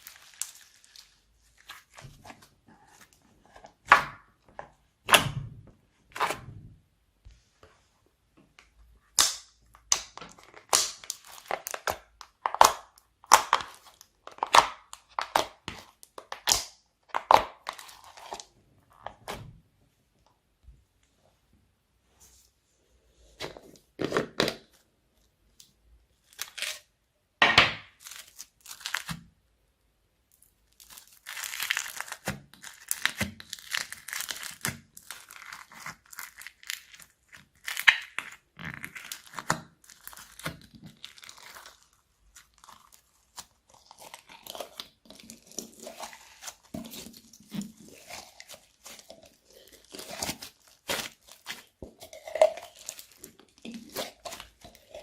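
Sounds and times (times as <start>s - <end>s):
slime squishing by hand: 0.0s - 6.8s, 8.8s - 19.8s, 30.3s - 55.0s.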